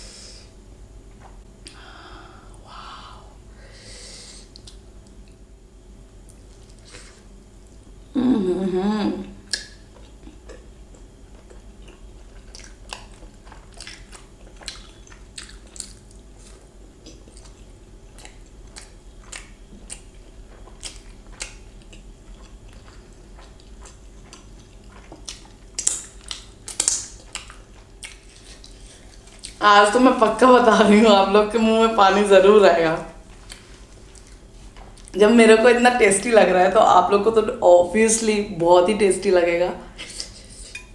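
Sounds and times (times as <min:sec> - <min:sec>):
short vocal sound: 0:08.2 - 0:09.3
wet chewing mouth clicks: 0:09.2 - 0:29.6.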